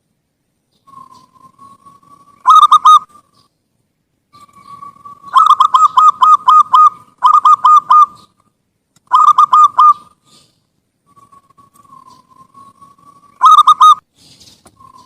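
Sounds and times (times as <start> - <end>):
dove cooing: 0.9 - 3.3, 4.3 - 8.4, 9.1 - 10.5, 11.1 - 14.0.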